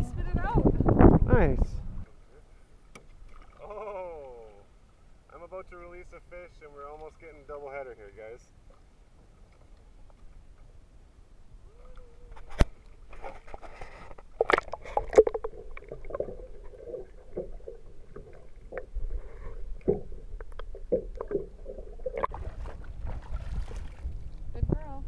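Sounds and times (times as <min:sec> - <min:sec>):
water splashing against boat: 0:11.8 - 0:25.0.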